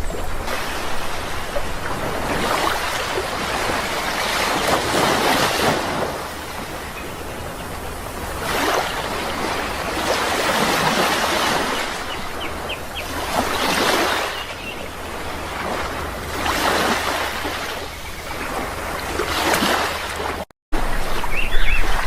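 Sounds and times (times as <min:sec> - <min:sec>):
sea waves breaking: 0:00.0 - 0:22.0
bird chirps: 0:21.2 - 0:22.0.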